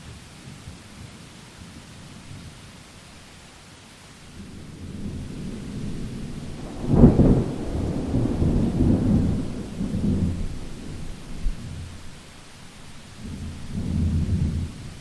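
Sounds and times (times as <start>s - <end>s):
steady rain hiss: 0.0s - 15.0s
thunder rumbling and cracking: 4.4s - 15.0s.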